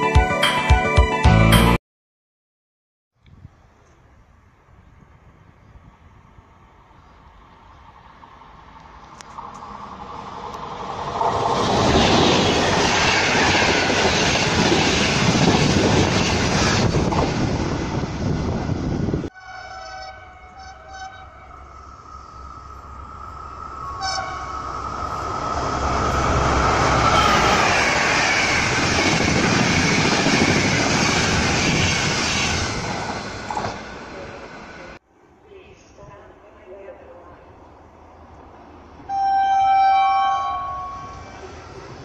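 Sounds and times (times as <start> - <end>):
train passing loudly: 6.7 - 35.0, 36.8 - 42.0
train wheels rumbling on rails: 9.0 - 19.3, 20.8 - 35.0
pulsing horn-like tone: 19.3 - 28.0, 39.1 - 41.5.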